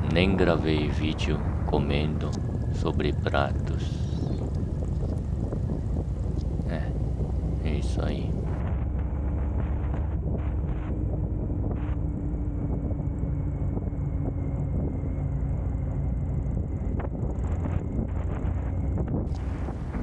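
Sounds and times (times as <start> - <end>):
motorcycle engine rumble: 0.0 - 8.6, 19.3 - 20.0
wind buffeting microphone: 0.0 - 8.6, 19.3 - 20.0.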